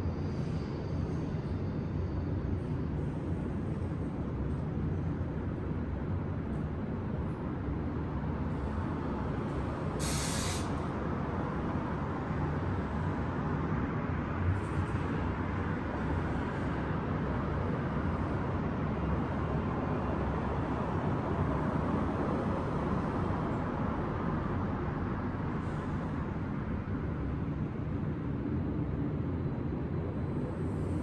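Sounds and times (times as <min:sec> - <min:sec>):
distant city traffic rumble: 0:00.0 - 0:31.0
short hiss: 0:10.0 - 0:10.7.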